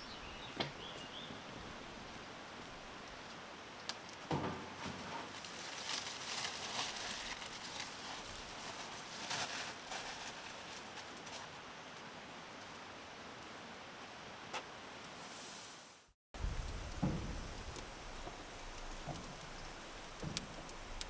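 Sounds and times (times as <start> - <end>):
outdoor background noise: 0.0 - 21.0
rustling and handling noises: 4.1 - 11.6.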